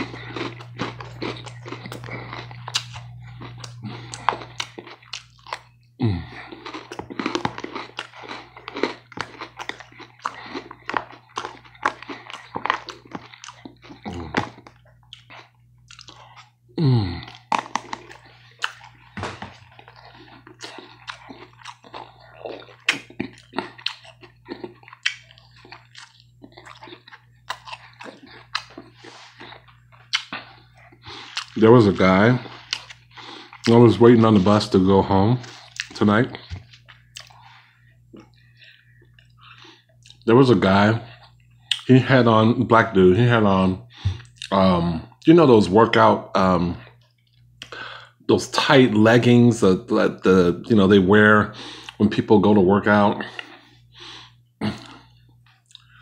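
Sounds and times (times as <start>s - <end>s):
chewing crunchy salad: 0.0s - 42.0s, 43.9s - 47.8s, 51.6s - 52.2s, 52.9s - 56.0s
low hum: 0.0s - 42.7s.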